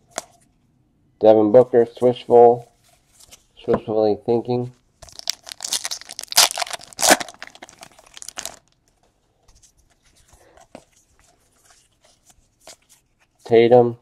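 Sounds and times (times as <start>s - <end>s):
card pack wrapper tearing: 5.0s - 8.8s
cards being handled: 9.5s - 13.6s.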